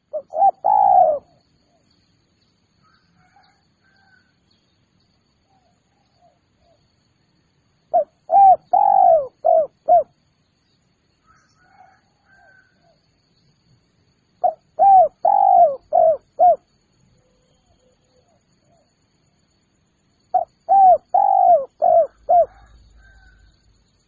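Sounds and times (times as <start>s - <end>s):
dove cooing: 0.0s - 1.4s, 7.9s - 10.1s, 14.4s - 16.6s, 20.3s - 23.3s.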